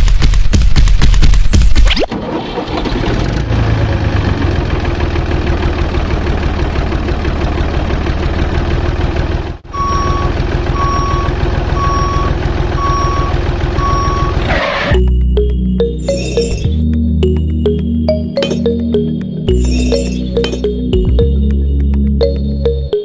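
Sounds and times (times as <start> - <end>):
diesel tractor engine chugging: 2.2 - 15.1
reversing alarm beeping: 9.7 - 16.7.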